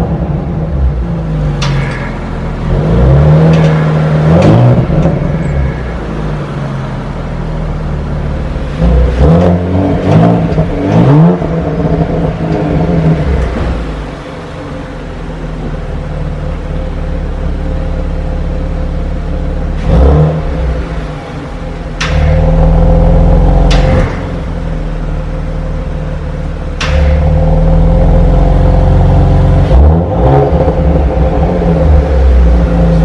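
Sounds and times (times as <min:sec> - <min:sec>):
car engine idling and revving: 0:00.0 - 0:33.0
exhaust cracks: 0:01.5 - 0:06.8, 0:07.6 - 0:17.8, 0:19.2 - 0:33.0.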